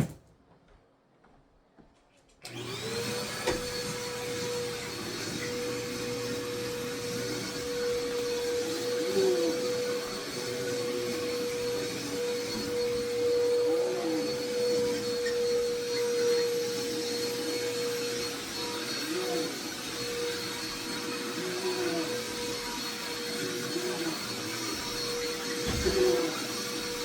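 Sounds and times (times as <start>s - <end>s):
vacuum cleaner running: 2.4s - 27.0s.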